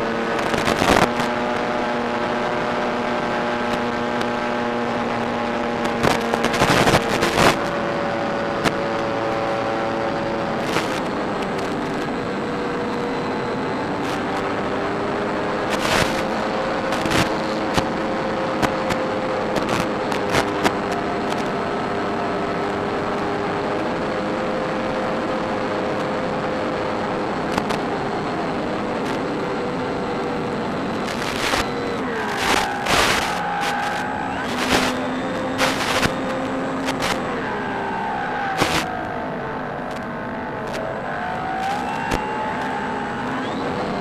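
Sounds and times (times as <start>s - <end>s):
electric motor and propeller whine: 0.0s - 44.0s
wind noise: 5.6s - 7.8s, 28.6s - 37.4s
loud wind blasts or crackle: 5.7s - 7.7s, 15.7s - 21.5s, 30.1s - 37.4s, 38.2s - 44.0s.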